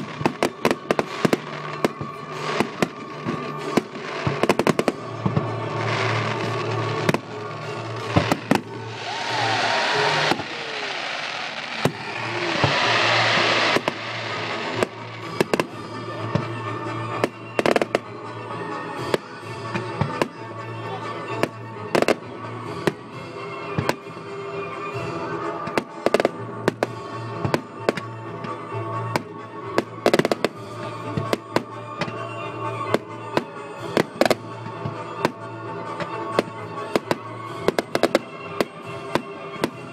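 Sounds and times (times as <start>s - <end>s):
fireworks crackling: 0.0s - 18.2s, 23.8s - 28.2s, 29.0s - 32.2s, 32.9s - 35.4s, 36.0s - 39.9s
music playing: 0.0s - 39.9s
firework shells bursting: 7.0s - 15.7s.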